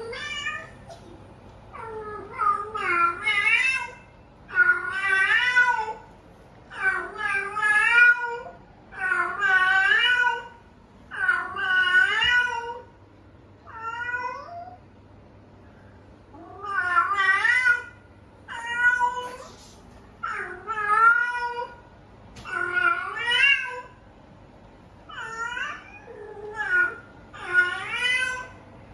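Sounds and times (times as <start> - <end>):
cat meowing: 13.7 - 14.8, 25.1 - 28.6.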